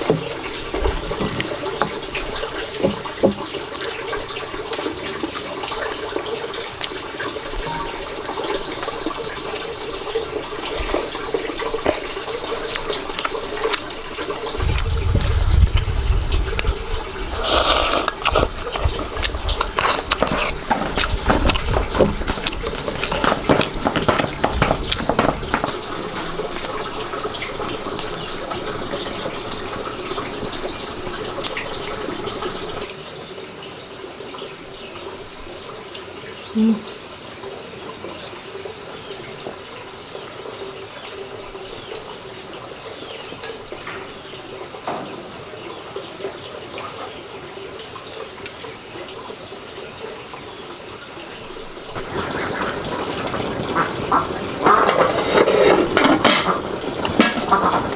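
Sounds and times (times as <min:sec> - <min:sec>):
insects chirring: 0:00.0 - 0:57.9
water running and splashing: 0:00.0 - 0:57.9
knocks and clatter of handling: 0:18.8 - 0:29.2, 0:52.0 - 0:57.9.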